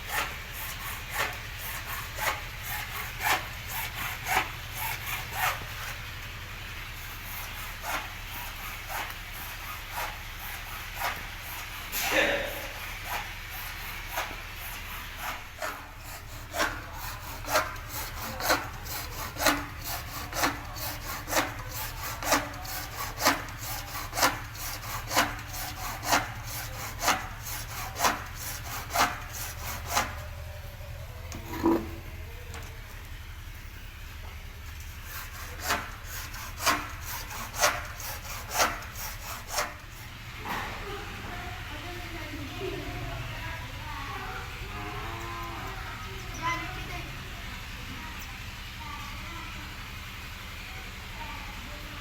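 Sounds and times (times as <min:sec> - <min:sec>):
rhythmic scraping strokes: 0:00.0 - 0:32.4, 0:34.7 - 0:41.3.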